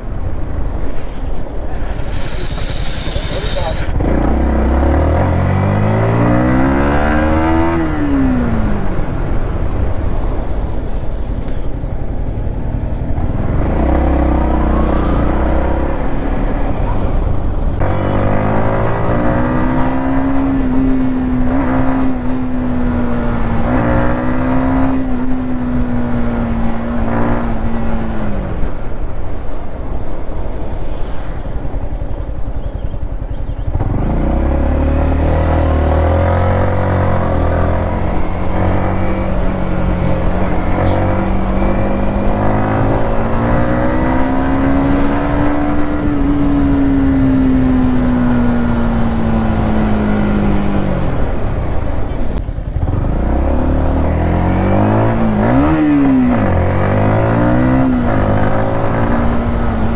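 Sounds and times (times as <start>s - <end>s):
motorcycle engine revving: 0.0s - 11.6s, 12.2s - 29.5s, 30.8s - 59.9s.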